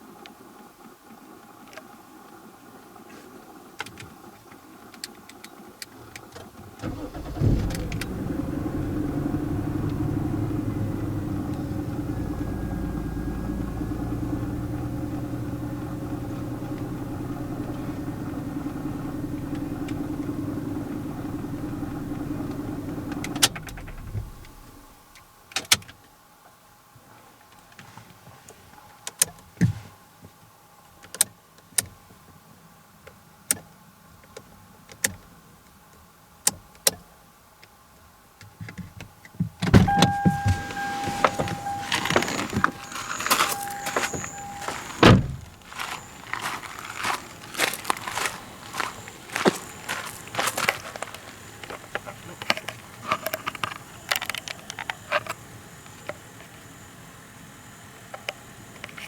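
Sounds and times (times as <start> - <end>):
car engine low hum: 6.8 - 25.4, 39.6 - 59.0.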